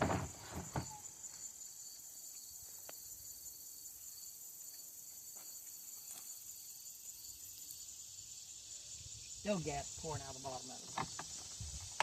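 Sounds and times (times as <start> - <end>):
high-pitched insect chirring: 5.6 - 12.0.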